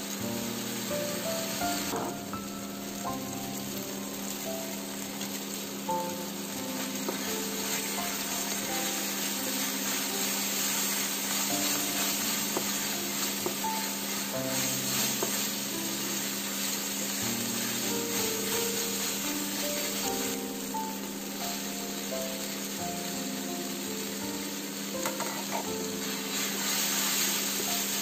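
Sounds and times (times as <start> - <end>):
food sizzling in a frying pan: 0.0 - 28.0
quiet background melody: 0.0 - 28.0
wooden spatula scraping a pan: 6.8 - 20.6, 25.0 - 28.0.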